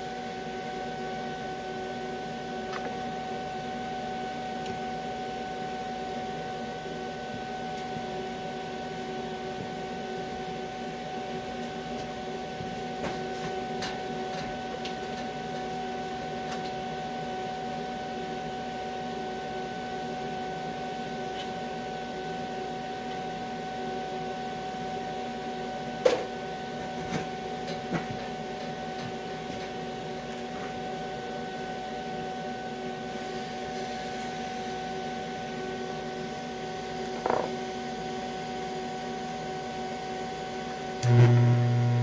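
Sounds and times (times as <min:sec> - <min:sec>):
welding arc buzzing hum: 0:00.0 - 0:05.9, 0:31.8 - 0:42.0.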